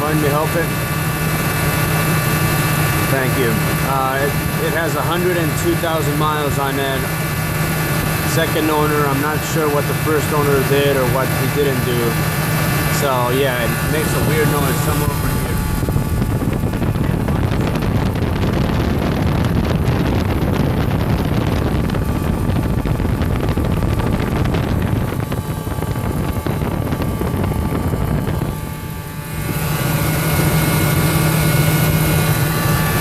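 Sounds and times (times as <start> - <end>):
squeaky engine noise: 0.0 - 17.3
truck engine running: 0.0 - 33.0.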